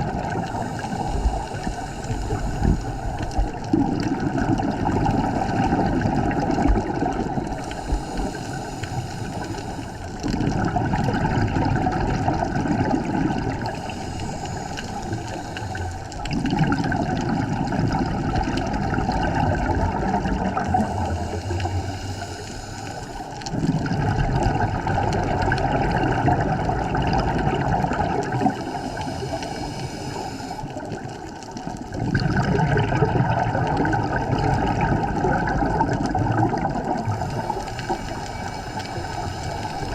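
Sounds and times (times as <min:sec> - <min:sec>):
bubbling exhale underwater: 0:00.0 - 0:39.9
regulator inhale hiss: 0:00.1 - 0:03.8, 0:04.9 - 0:10.4, 0:13.4 - 0:16.6, 0:20.5 - 0:23.6, 0:28.2 - 0:31.5, 0:37.0 - 0:39.9.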